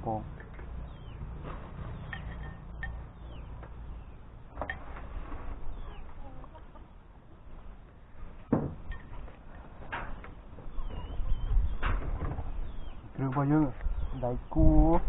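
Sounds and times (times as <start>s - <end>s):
chickens clucking: 0.0s - 15.0s
knock: 8.5s - 8.8s.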